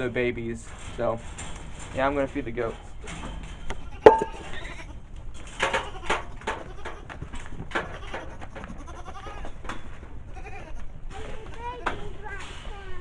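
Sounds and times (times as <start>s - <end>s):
sharp knock: 4.1s - 4.4s.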